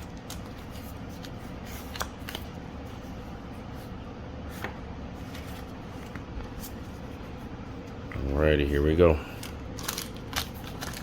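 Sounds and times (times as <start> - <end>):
low background hum: 0.0 - 11.0
foil pack crinkling: 9.3 - 11.0.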